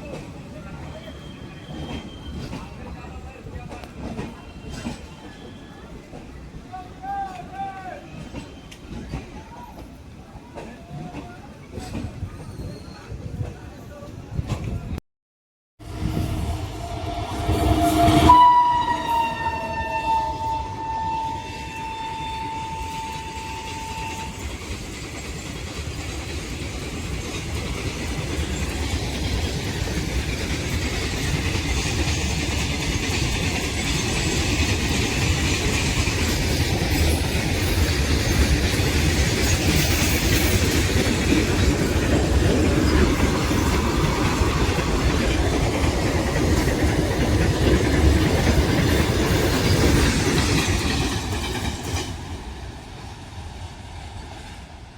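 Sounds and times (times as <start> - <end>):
train rumble and wheel clatter: 0.0 - 15.0, 15.8 - 54.9
train horn: 15.8 - 24.6.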